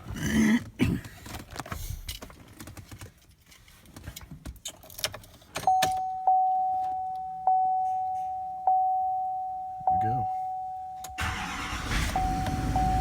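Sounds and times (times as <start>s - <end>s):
dashboard warning chime: 5.7s - 13.0s.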